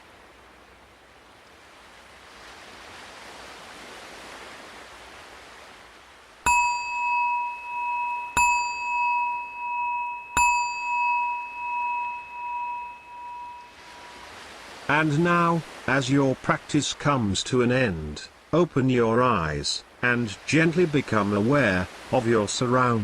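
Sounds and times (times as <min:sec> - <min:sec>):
ocean waves washing: 0:00.0 - 0:23.0
meditation bell ringing: 0:06.4 - 0:14.4.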